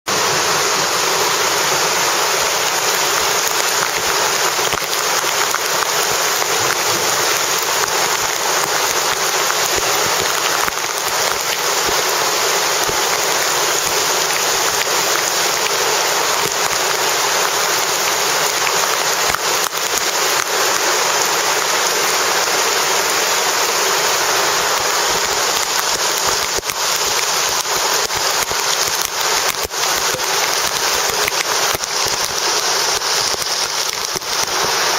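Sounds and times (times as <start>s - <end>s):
steady rain hiss: 0.1s - 34.9s
raindrop hits: 2.6s - 20.8s, 24.7s - 34.9s.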